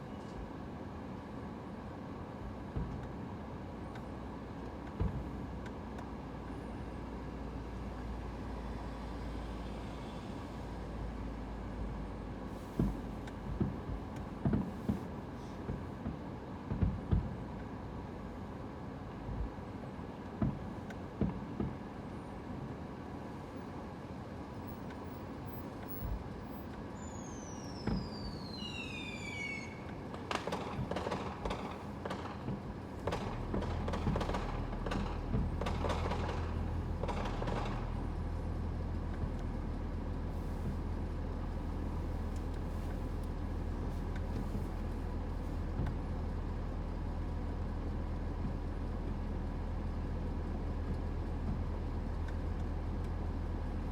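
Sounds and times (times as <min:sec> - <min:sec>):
vehicle engine droning: 0:04.5 - 0:15.5, 0:23.3 - 0:53.9
knocks and thunks: 0:12.8 - 0:15.1, 0:15.7 - 0:17.4, 0:30.1 - 0:38.2
high squeal: 0:27.0 - 0:30.0.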